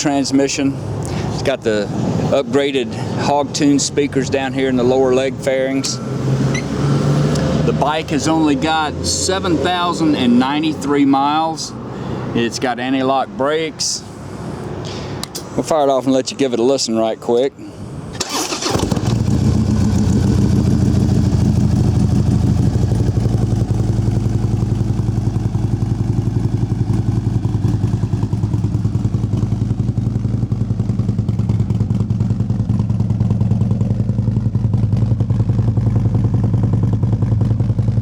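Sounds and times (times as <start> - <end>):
motorcycle engine idling: 19.2 - 38.0.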